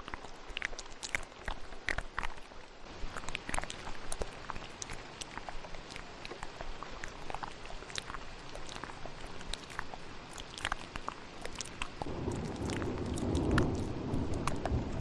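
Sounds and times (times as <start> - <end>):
wet mouth clicks and smacks: 0.0 - 15.0
rain hiss: 8.2 - 15.0
low thunder rumble: 12.0 - 15.0.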